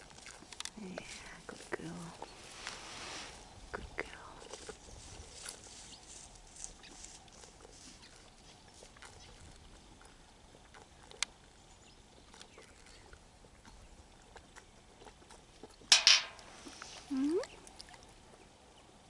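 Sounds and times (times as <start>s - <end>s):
faint scattered clicks: 0.5s - 1.8s, 11.1s - 11.4s.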